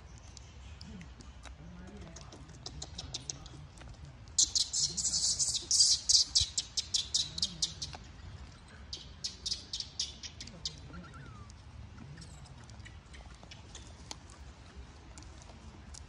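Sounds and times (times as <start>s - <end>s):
small bird chirping: 2.2s - 3.6s, 4.3s - 14.1s.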